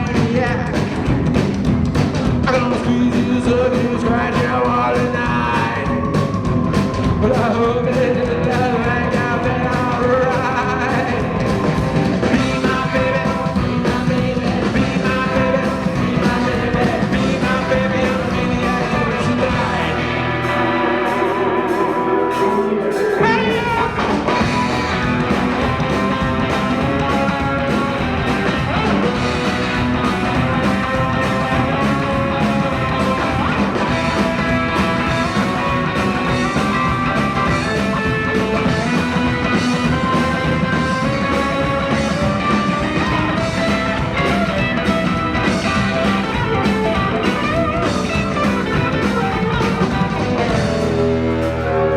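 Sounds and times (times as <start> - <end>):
person singing: 0.0 - 1.1, 2.4 - 51.9
electric guitar: 0.0 - 51.9
rockabilly band playing: 0.0 - 51.9.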